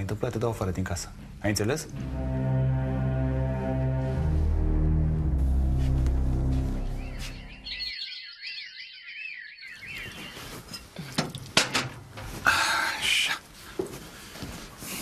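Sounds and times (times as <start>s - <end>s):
background music: 0.0s - 7.8s
small bird chirping: 7.0s - 11.1s
rustling: 9.7s - 12.7s.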